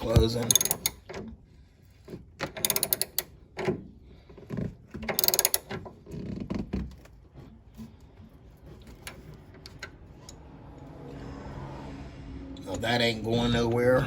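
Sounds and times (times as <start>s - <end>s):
socket ratchet clicking: 0.4s - 1.1s, 2.5s - 3.3s, 5.1s - 5.7s.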